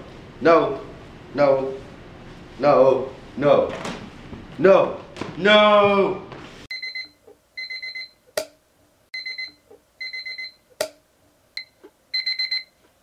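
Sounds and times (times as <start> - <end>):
alarm clock beeping: 6.7 - 8.2, 9.2 - 10.6, 11.6 - 12.8.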